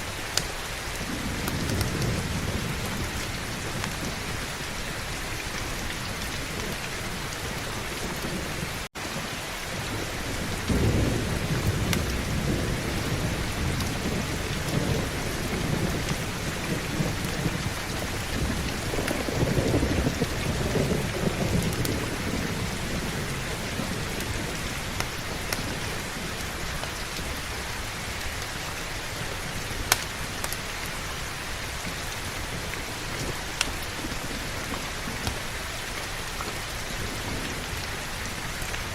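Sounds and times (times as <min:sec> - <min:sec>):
heavy rain: 0:00.0 - 0:38.9
low rolls of thunder: 0:00.8 - 0:28.4.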